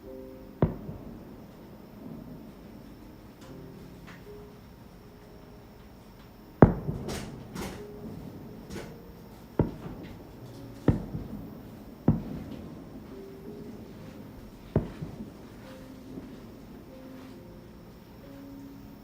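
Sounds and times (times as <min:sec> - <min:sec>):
fireworks booms: 0:00.6 - 0:02.9, 0:06.6 - 0:16.7
fireworks crackles and hisses: 0:06.6 - 0:17.5.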